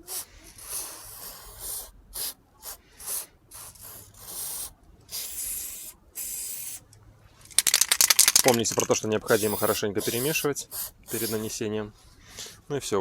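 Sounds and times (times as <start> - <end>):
aerosol spray hissing: 0.1 - 6.8, 9.3 - 11.5.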